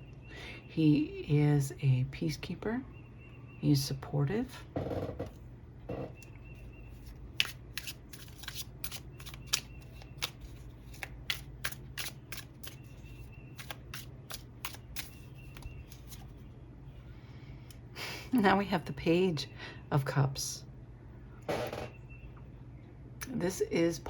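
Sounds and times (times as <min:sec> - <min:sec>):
steady low hum: 0:00.0 - 0:24.0
cards being shuffled: 0:06.9 - 0:16.4.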